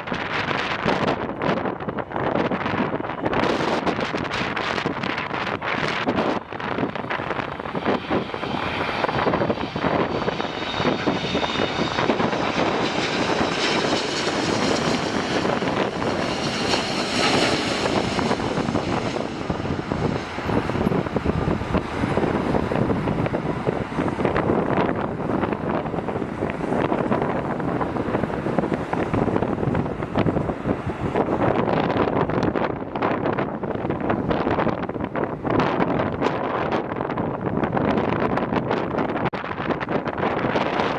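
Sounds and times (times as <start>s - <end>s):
jet engines roaring: 0.0s - 40.9s
wind buffeting microphone: 0.0s - 40.9s.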